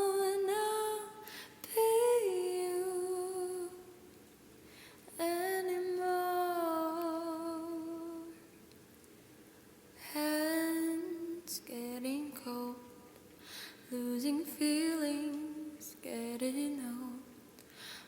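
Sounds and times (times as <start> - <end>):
woman singing softly: 0.0 - 4.2, 5.1 - 8.6, 10.0 - 13.2, 13.8 - 17.5
quiet breaths: 1.1 - 1.7, 4.6 - 5.2, 12.8 - 14.0, 17.3 - 18.0.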